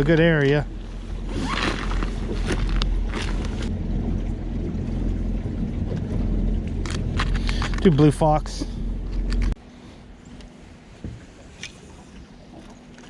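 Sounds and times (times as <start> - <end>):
water wash: 0.0 - 9.6
boat motor humming: 0.0 - 13.0.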